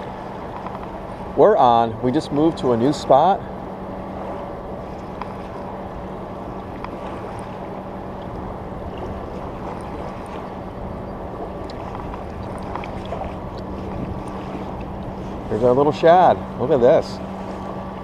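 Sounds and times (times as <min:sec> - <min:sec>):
moving water: 0:00.0 - 0:18.0
steady low hum: 0:00.0 - 0:18.0
faint clicks: 0:00.5 - 0:01.0
wind noise: 0:08.2 - 0:15.6.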